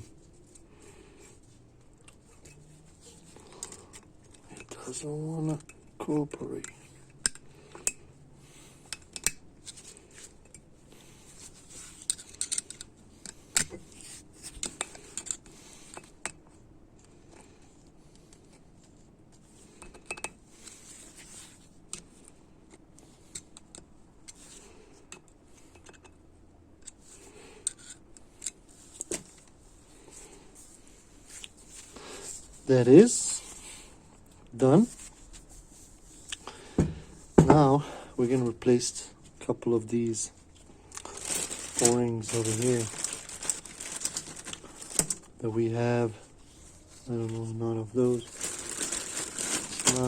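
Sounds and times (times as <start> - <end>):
metallic clicks and scrapes: 11.4 - 16.4, 26.8 - 29.4.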